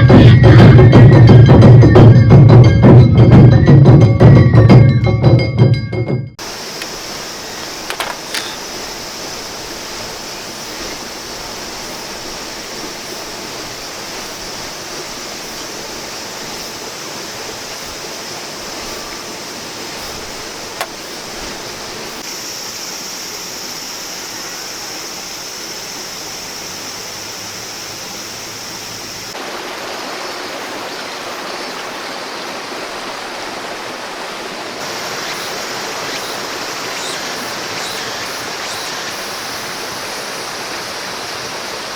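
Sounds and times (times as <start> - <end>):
river flowing: 6.4 - 41.9
brief click: 7.9 - 8.7.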